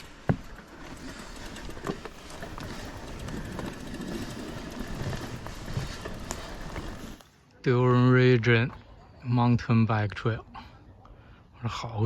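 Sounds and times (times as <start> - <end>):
steady outdoor rumbling: 0.0 - 8.8.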